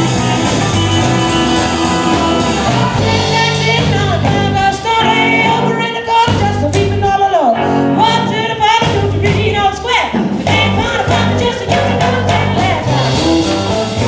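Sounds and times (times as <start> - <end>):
sliding lead melody: 0.0 - 6.0, 10.5 - 14.0
bass guitar: 0.0 - 14.0
drum kit beat: 0.0 - 14.0.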